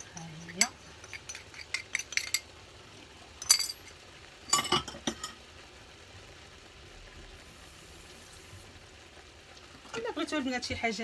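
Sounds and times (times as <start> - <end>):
utensils clinking on cookware: 0.0 - 2.6, 3.4 - 5.4.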